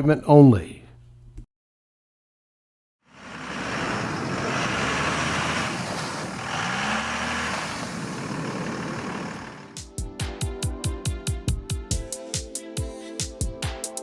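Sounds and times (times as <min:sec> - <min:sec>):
diesel engine droning: 0:03.1 - 0:09.8.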